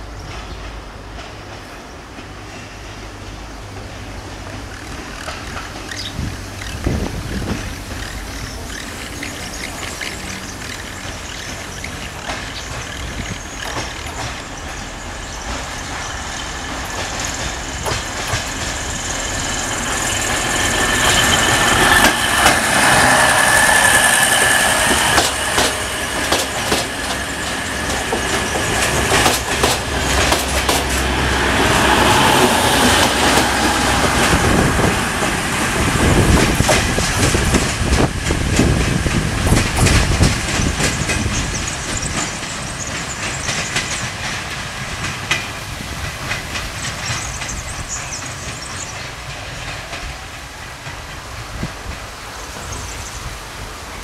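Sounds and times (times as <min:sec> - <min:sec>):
diesel train passing: 0:00.0 - 0:54.0
wheels clicking over rail joints: 0:00.1 - 0:54.0
high wheel squeal: 0:07.4 - 0:29.1.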